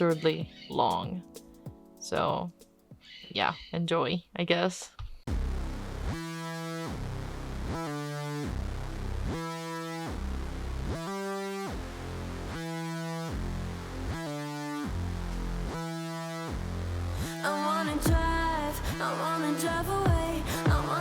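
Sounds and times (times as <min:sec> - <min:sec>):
synth keyboard chords: 0:00.0 - 0:03.0, 0:05.3 - 0:21.0
low bass notes: 0:05.3 - 0:19.0, 0:19.7 - 0:21.0.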